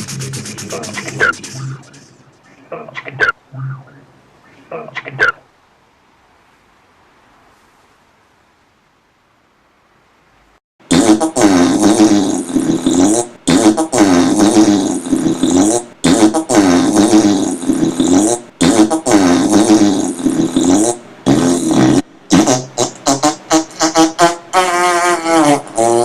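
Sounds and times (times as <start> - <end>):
looped silly noises: 0.0 - 5.4, 10.9 - 26.0.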